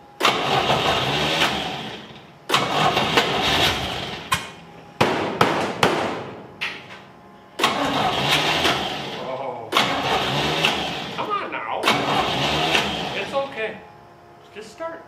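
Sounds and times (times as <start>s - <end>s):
race car engine catching: 0.2s - 6.3s, 7.6s - 13.3s.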